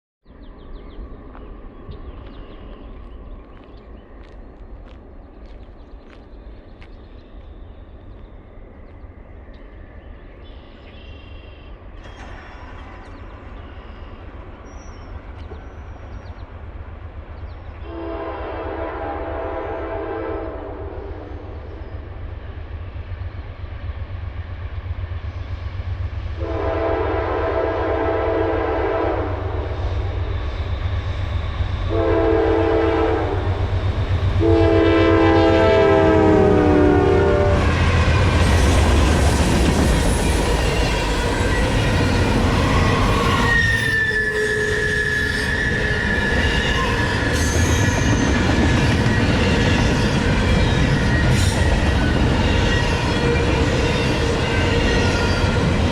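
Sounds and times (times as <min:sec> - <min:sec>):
freight train rumbling by: 0:00.3 - 0:55.9
train horn blasts: 0:17.8 - 0:21.6, 0:26.4 - 0:30.0, 0:31.9 - 0:33.7, 0:34.3 - 0:38.4, 0:40.4 - 0:48.4, 0:49.3 - 0:55.9
high wheel squeal: 0:39.9 - 0:55.8.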